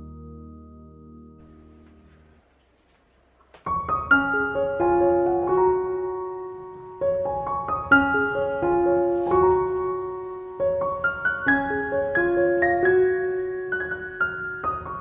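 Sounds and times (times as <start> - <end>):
soft solo piano music: 3.6 - 15.0.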